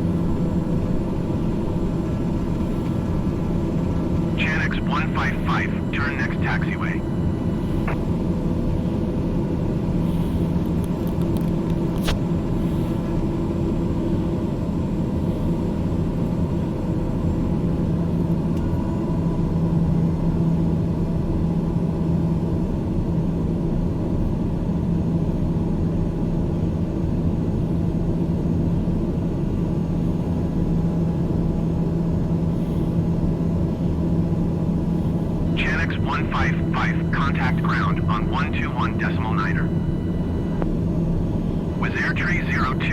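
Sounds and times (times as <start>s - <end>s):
jet engines rumbling: 0.0s - 12.4s, 34.8s - 42.9s.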